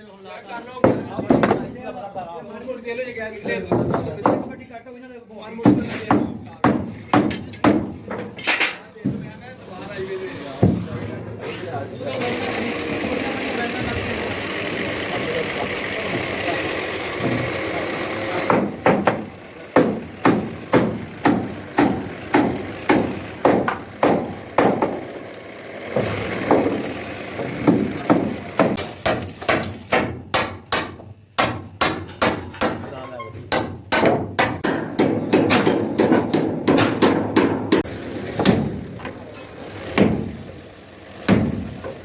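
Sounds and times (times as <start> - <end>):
hand-hammer blows: 12.2 - 40.4.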